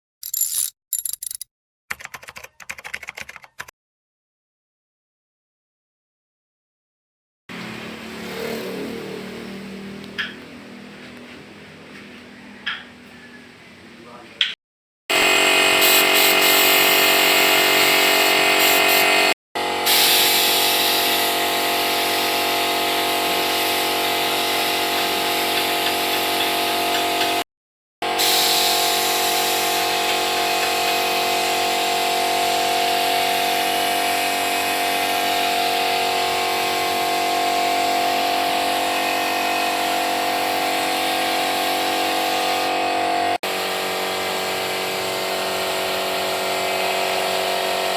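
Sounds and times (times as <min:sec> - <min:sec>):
electric power tool running: 0:15.1 - 0:27.4, 0:28.0 - 0:47.9.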